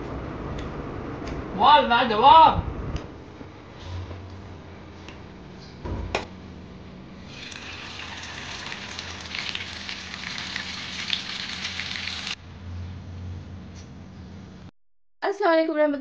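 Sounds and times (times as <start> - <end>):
prawns sizzling in hot oil: 7.2 - 12.4.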